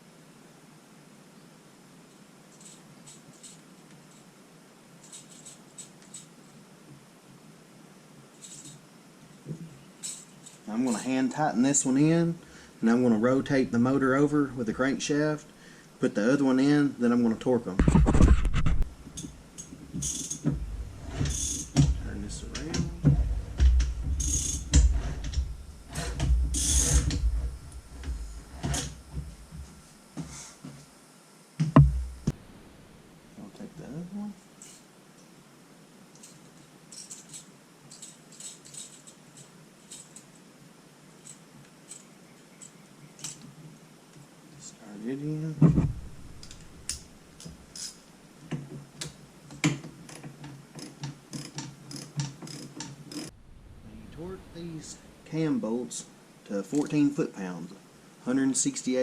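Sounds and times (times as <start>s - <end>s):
hand tools clicking and clunking on metal: 19.0s - 30.3s, 36.2s - 40.4s, 46.4s - 53.3s
loud knock: 31.6s - 32.4s.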